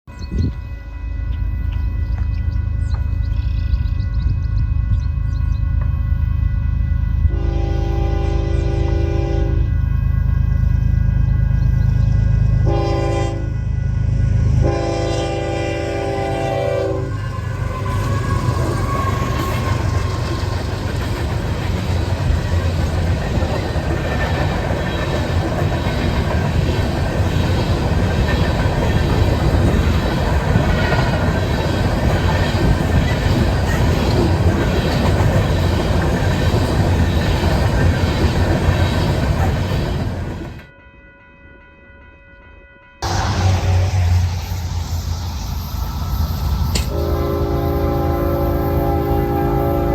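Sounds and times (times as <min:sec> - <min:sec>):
train rumbling past: 0:00.1 - 0:40.8, 0:43.0 - 0:49.9
train horn blasts: 0:00.3 - 0:31.4, 0:40.6 - 0:44.8, 0:46.7 - 0:49.9.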